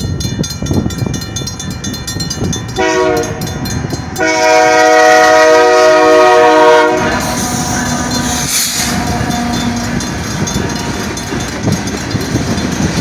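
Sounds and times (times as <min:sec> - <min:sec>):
low rumble of train rolling: 0:00.0 - 0:13.0
locomotive air horn blasts: 0:02.8 - 0:03.6, 0:04.2 - 0:10.5.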